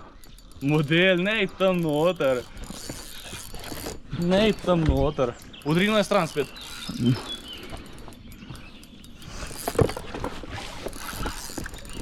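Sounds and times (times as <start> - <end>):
water noise: 0.0 - 12.0.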